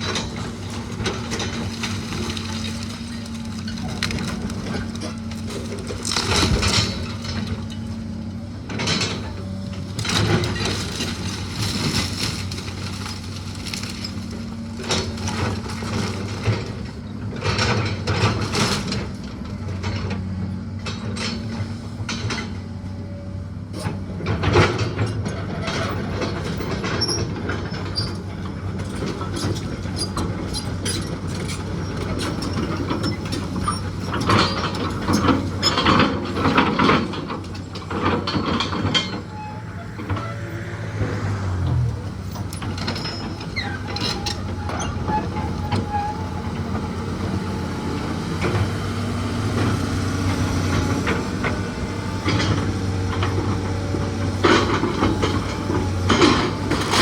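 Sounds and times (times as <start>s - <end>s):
wood crunching and cracking: 0.2s - 7.9s, 9.2s - 16.4s
machine engine running: 27.9s - 56.9s.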